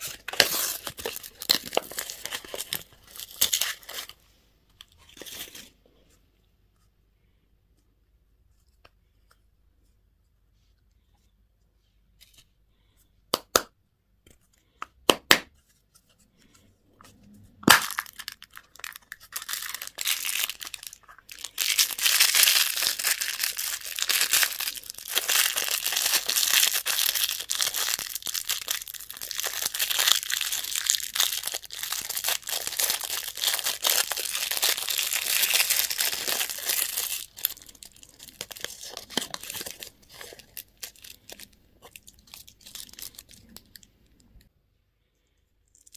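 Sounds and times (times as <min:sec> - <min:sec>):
candy wrapper crinkling: 0:00.0 - 0:04.2, 0:17.6 - 0:44.4, 0:45.6 - 0:45.9.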